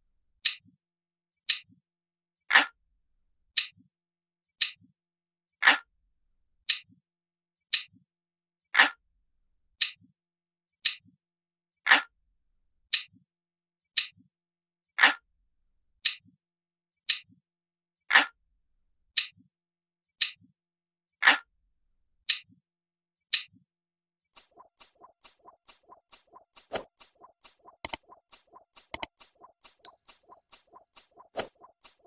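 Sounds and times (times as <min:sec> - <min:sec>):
clock ticking: 0:24.4 - 0:32.0.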